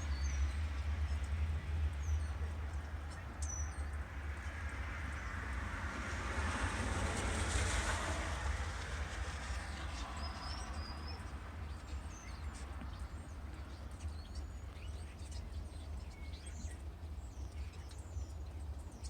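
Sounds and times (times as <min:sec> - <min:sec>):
small birds chirping: 0:00.0 - 0:05.3, 0:09.6 - 0:19.0
passing vehicle: 0:03.9 - 0:13.2.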